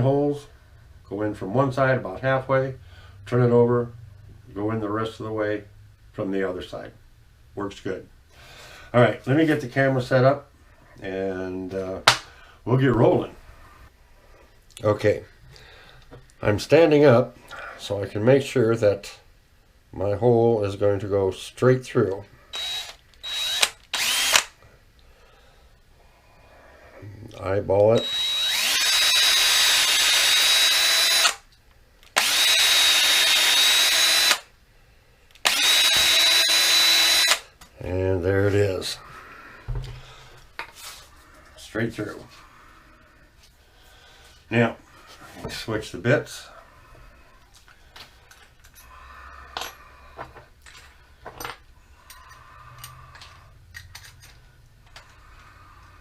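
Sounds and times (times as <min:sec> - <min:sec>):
electric drill whining: 0:22.5 - 0:24.5, 0:28.0 - 0:31.5, 0:32.2 - 0:34.5, 0:35.4 - 0:37.5.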